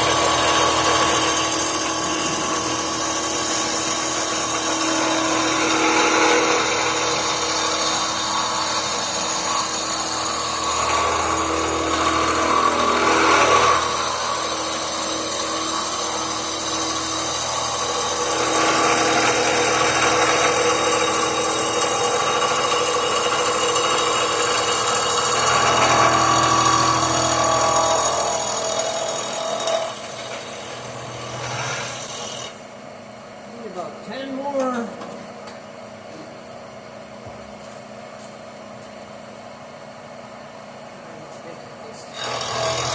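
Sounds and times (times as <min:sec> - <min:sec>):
electric grinder grinding metal: 0:00.0 - 0:32.5, 0:42.2 - 0:42.9.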